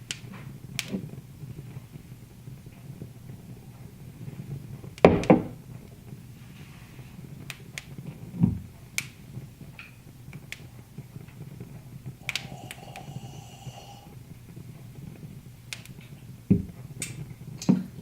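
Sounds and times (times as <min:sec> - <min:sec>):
wood fire crackling: 0:00.0 - 0:18.0
faint ringing tone: 0:12.2 - 0:14.2.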